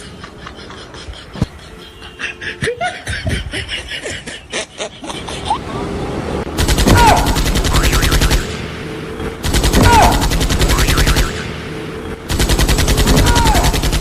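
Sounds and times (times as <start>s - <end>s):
people laughing: 0.0s - 6.0s
fake machine-gun fire: 6.6s - 8.7s, 9.4s - 11.6s, 12.3s - 14.0s.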